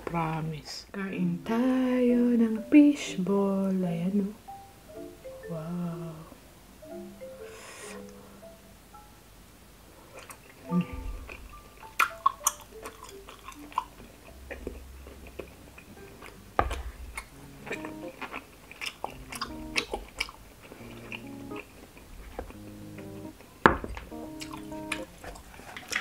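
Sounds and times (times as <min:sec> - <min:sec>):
soft background music: 0:00.0 - 0:09.5, 0:10.1 - 0:26.0
person chewing: 0:10.1 - 0:26.0.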